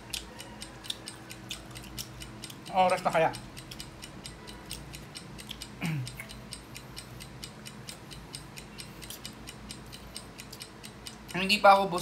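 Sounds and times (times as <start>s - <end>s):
crunching fried spring rolls: 0.0s - 2.6s.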